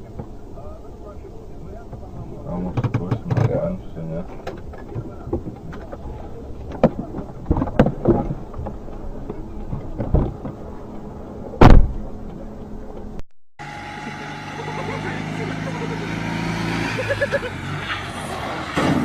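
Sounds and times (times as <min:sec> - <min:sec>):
engine hum with held tones: 0:00.0 - 0:19.0
vehicle road noise: 0:00.0 - 0:19.0
loud heavy thump: 0:11.6 - 0:12.2
sharp knocks: 0:11.6 - 0:12.4.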